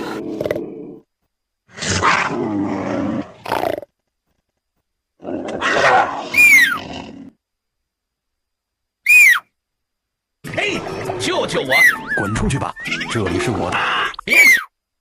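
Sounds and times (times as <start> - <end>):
wild cat calls: 5.2 - 7.4, 10.8 - 14.7
high cry falling in pitch: 5.6 - 6.8, 9.0 - 9.6, 11.7 - 13.1, 13.7 - 14.8.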